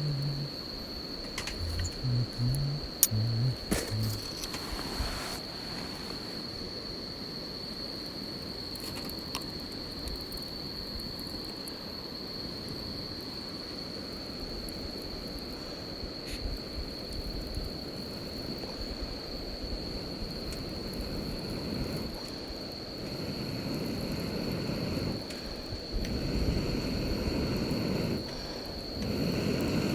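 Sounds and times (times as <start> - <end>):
campfire low rumble: 0.0 - 6.8, 16.6 - 29.9.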